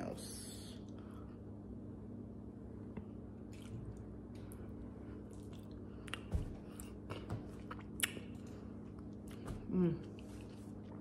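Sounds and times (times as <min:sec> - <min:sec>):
low steady hum: 0:00.0 - 0:11.0
wet chewing: 0:03.4 - 0:11.0
lip smacks: 0:05.3 - 0:09.6.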